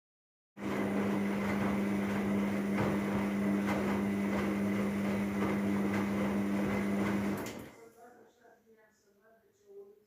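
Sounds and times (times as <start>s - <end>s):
washing machine hum: 0.6s - 7.8s.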